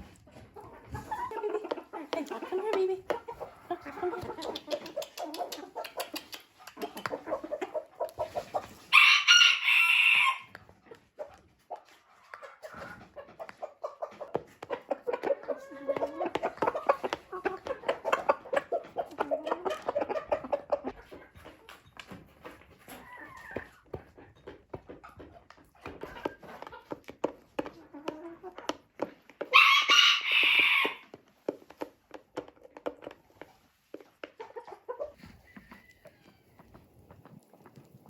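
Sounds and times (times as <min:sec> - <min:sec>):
chickens clucking: 0:00.0 - 0:38.0
rooster crowing: 0:08.9 - 0:10.5, 0:29.5 - 0:31.0.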